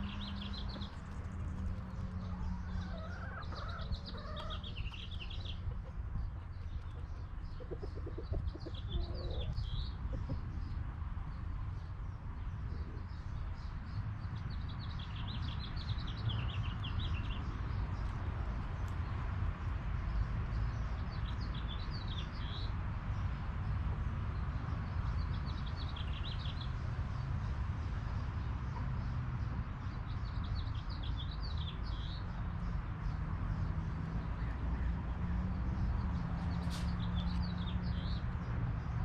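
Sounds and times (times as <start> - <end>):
bird chirping: 0.0 - 10.8.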